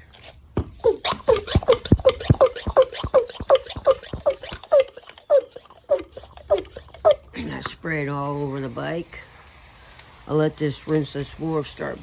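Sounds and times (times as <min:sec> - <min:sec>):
hand sprayer clicking and hissing: 0:00.8 - 0:07.4.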